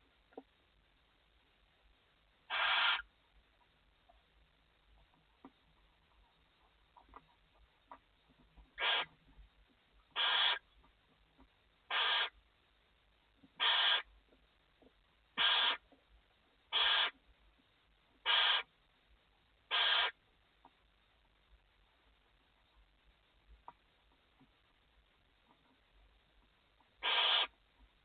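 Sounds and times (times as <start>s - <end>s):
barn owl hissing call: 2.5s - 3.1s, 8.8s - 9.2s, 10.1s - 10.6s, 11.9s - 12.4s, 13.6s - 14.1s, 15.4s - 15.8s, 16.7s - 17.2s, 18.2s - 18.7s, 19.7s - 20.2s, 27.0s - 27.6s.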